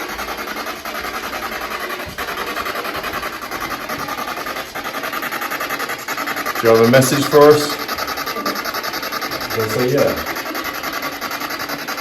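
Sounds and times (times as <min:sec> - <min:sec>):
choppy radio static: 0:00.0 - 0:12.0.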